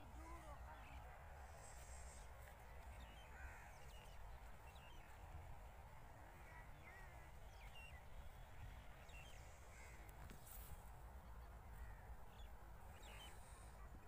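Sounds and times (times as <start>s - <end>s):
birds calling: 1.7s - 5.1s.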